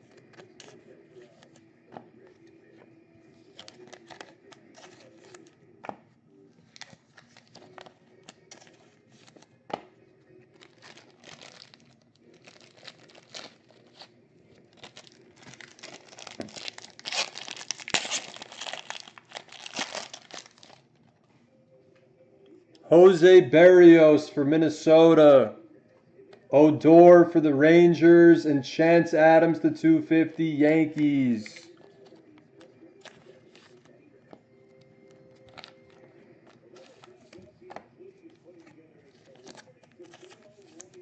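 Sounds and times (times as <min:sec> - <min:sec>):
card pack wrapper tearing and crinkling: 0:10.6 - 0:14.1, 0:14.7 - 0:20.8, 0:35.4 - 0:36.0, 0:39.2 - 0:41.0.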